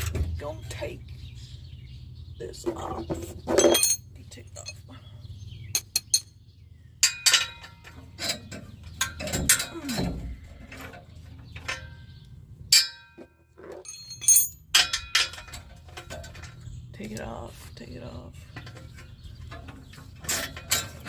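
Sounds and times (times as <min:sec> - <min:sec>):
metal clinks and knocks: 0:03.5 - 0:04.9, 0:05.7 - 0:06.3, 0:07.0 - 0:16.9, 0:18.5 - 0:21.0.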